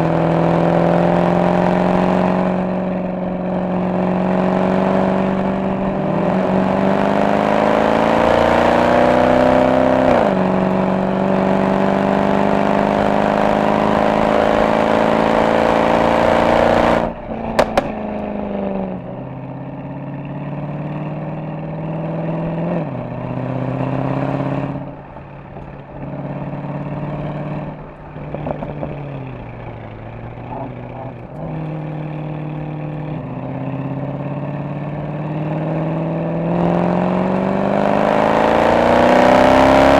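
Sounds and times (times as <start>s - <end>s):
car exhaust accelerating: 0.0s - 39.9s
exhaust pops and crackles: 17.3s - 18.6s.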